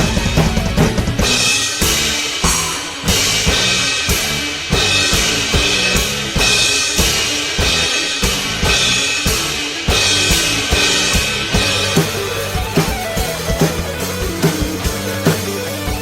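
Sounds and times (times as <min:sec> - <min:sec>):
instrumental rock backing track: 0:00.0 - 0:16.0
crash cymbals: 0:01.5 - 0:11.5.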